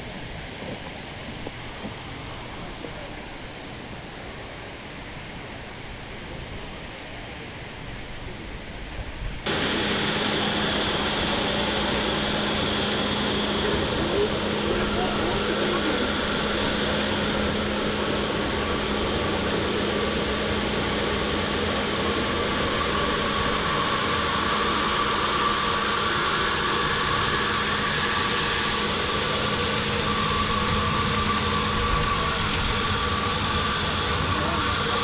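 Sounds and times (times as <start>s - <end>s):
low pump hum: 9.5s - 35.0s
water rushing under pressure: 9.5s - 35.0s.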